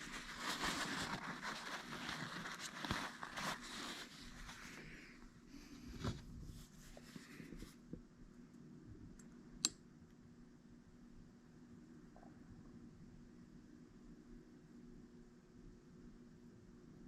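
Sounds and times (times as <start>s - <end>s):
handling rustle: 0.0s - 7.9s.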